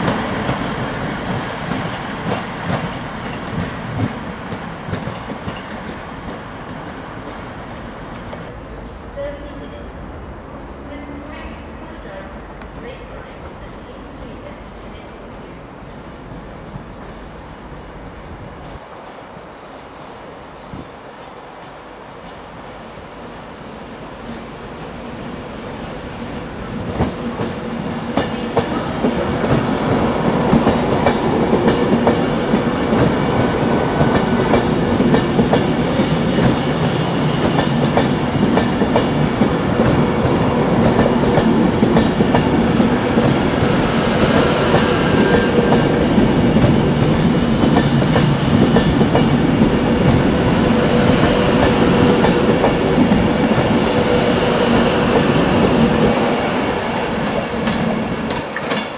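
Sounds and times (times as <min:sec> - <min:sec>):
train wheels clicking over rail joints: 0:00.0 - 0:07.4, 0:26.8 - 0:58.9
electric train low hum: 0:00.0 - 0:58.9.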